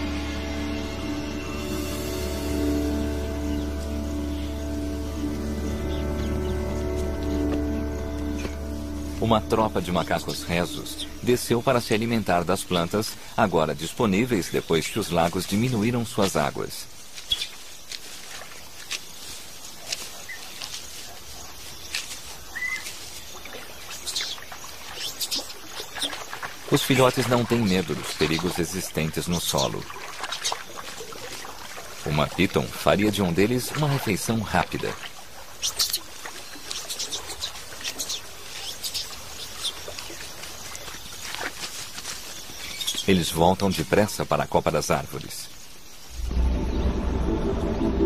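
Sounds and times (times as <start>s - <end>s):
whistled bird notes: 0.0s - 13.4s, 22.5s - 22.9s
steady background hiss: 0.0s - 30.2s, 31.2s - 48.0s
birds chirping: 0.0s - 48.0s
faint outdoor ambience: 0.0s - 48.0s.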